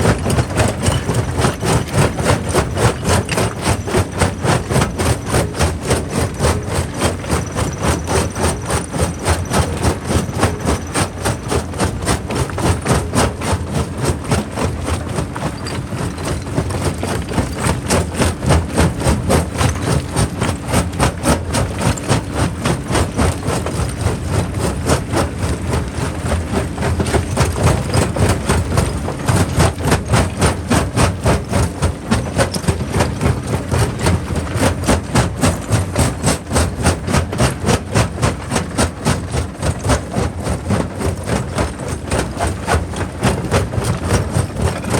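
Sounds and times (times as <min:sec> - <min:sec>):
rock crusher machine drone: 0:00.0 - 0:44.9.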